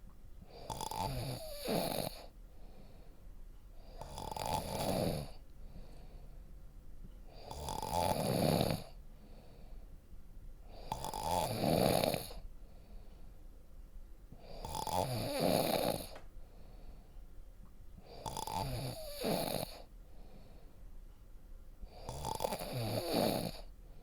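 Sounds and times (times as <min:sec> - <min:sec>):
loud deep snoring: 0:00.5 - 0:02.3, 0:03.8 - 0:05.4, 0:07.3 - 0:09.0, 0:10.7 - 0:12.4, 0:14.4 - 0:16.2, 0:18.0 - 0:19.9, 0:21.9 - 0:23.7.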